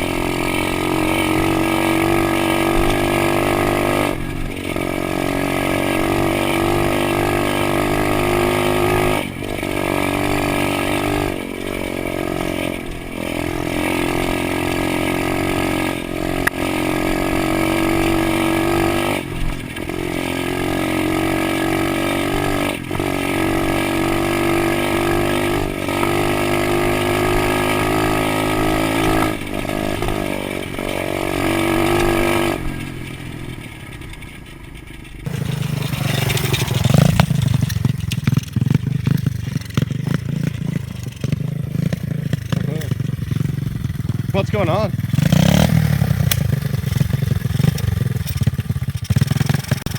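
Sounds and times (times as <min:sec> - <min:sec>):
pit bike engine at high revs: 0:00.0 - 0:33.0, 0:35.2 - 0:49.9.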